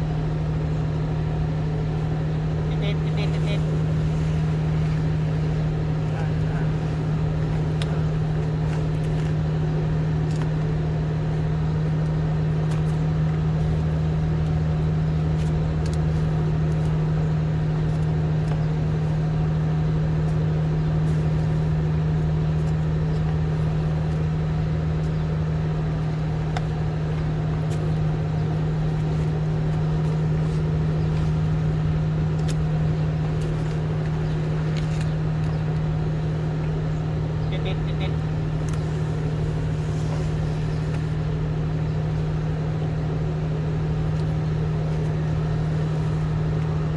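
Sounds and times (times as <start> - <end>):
steady motor hum: 0.0 - 46.9.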